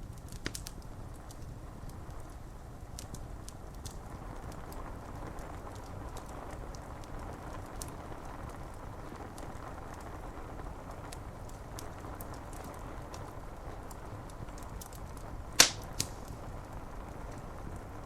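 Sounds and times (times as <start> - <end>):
rain on window glass: 0.4 - 18.0
sharp ticks and crackles: 11.0 - 17.9.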